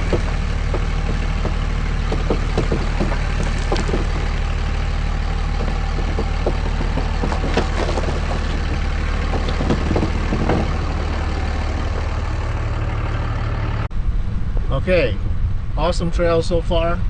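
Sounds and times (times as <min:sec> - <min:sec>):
light knocks and creaks: 0:00.0 - 0:12.8
diesel engine at low revs: 0:00.0 - 0:17.0.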